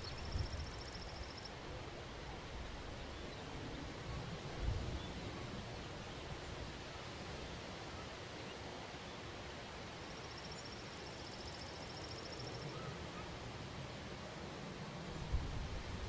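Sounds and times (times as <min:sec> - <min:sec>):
wind rustling through plants: 0:00.0 - 0:16.0.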